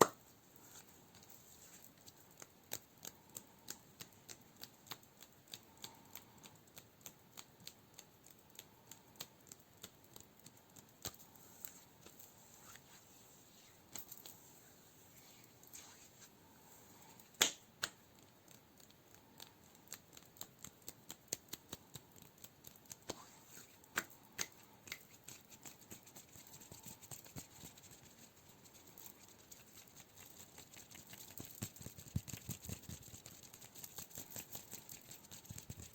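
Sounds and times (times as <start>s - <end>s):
finger tapping and scratching: 17.4s - 35.9s.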